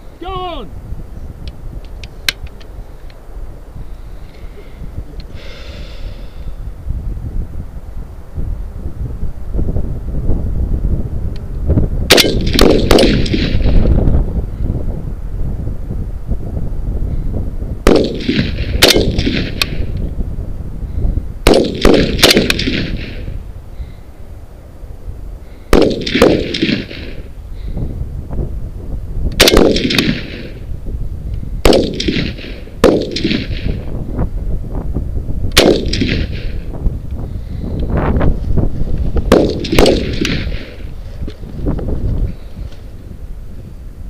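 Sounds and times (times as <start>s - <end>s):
steady low rumble: 0.0s - 44.0s
rifle shots with ringing echo: 12.1s - 13.8s, 17.8s - 19.9s, 21.4s - 23.4s, 25.7s - 27.3s, 29.4s - 30.7s, 31.6s - 33.9s, 35.5s - 36.7s, 39.3s - 40.9s.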